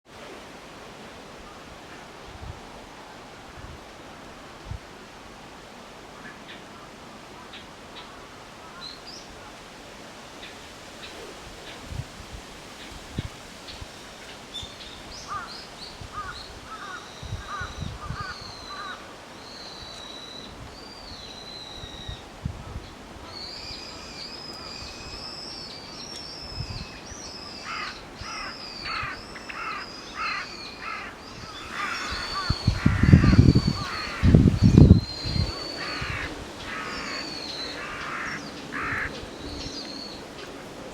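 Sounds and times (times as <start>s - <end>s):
harsh bird calls: 23.3s - 40.6s
birds chirping and whistling: 23.4s - 38.0s.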